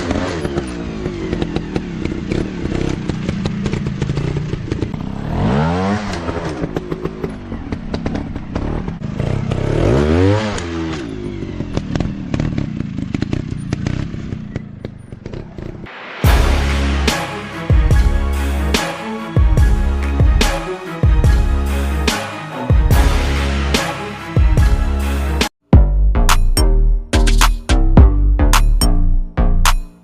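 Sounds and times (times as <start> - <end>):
dirt bike engine revving: 0.0 - 22.3.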